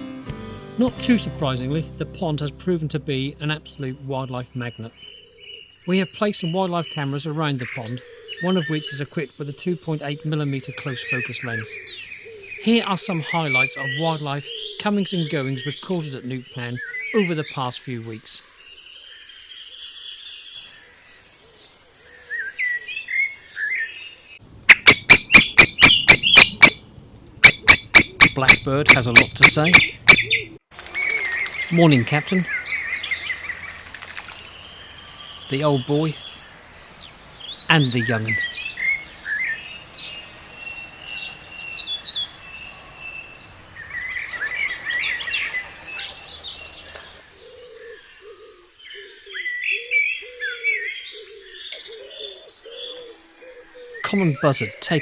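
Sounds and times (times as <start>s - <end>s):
songbirds singing: 2.4s - 55.0s
blackbird alarm calls: 22.3s - 54.7s
soft bird warble: 27.4s - 35.0s
pigeon cooing: 27.5s - 31.7s, 47.1s - 54.0s.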